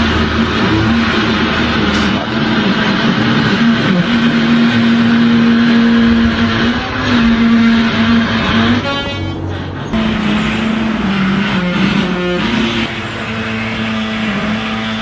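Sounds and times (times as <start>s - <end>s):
harsh grinding rasp: 10.0s - 15.0s
machine buzzing drone: 10.0s - 15.0s.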